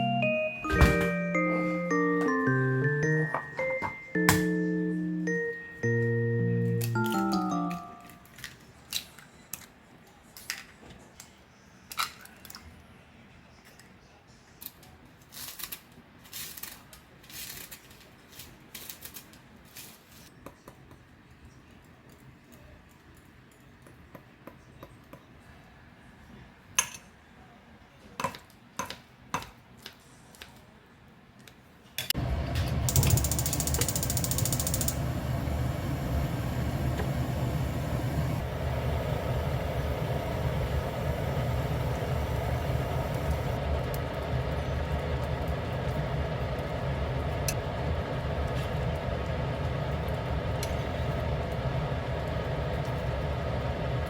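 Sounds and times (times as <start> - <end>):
machine motor humming: 32.2 - 54.0.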